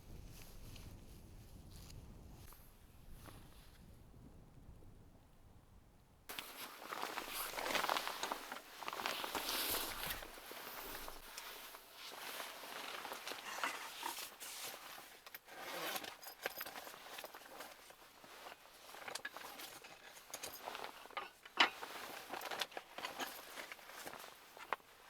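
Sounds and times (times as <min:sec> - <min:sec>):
objects being handled: 0:06.3 - 0:25.0.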